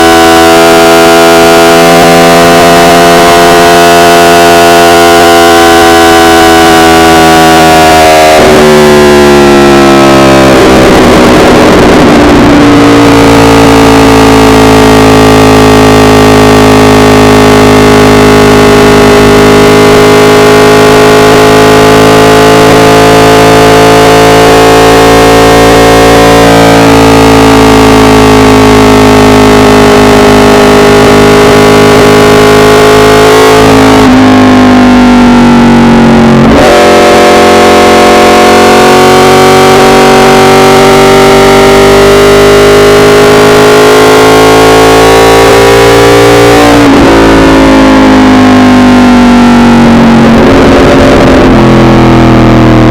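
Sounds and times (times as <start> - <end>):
distorted motorcycle engine: 0.0 - 52.9.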